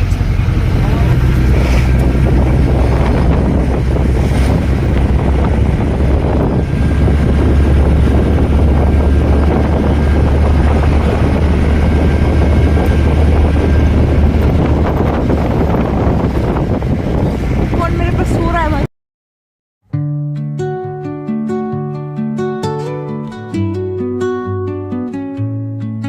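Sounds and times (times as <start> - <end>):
vehicle engine and road rumble: 0.0 - 18.9.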